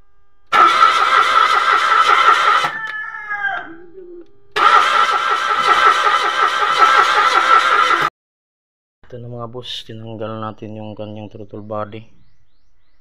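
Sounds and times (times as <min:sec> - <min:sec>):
starter motor cranking engine: 0:00.5 - 0:02.8, 0:04.6 - 0:08.1
rooster crowing: 0:02.1 - 0:04.0.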